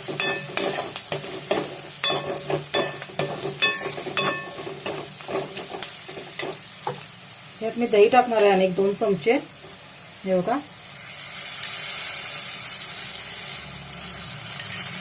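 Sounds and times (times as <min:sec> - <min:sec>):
spoon scraping a metal pan: 0:00.0 - 0:06.6
spices sizzling in a pan: 0:00.0 - 0:15.0
spoon knocking against a pan: 0:00.1 - 0:05.8.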